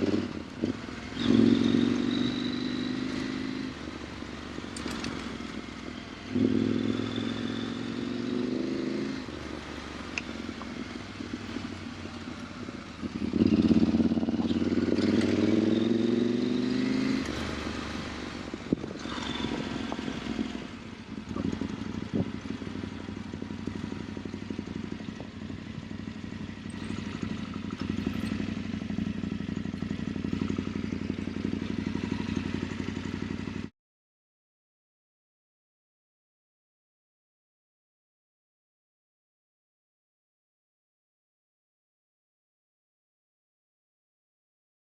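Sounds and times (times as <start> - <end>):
motorcycle engine revving: 0.0 - 33.7.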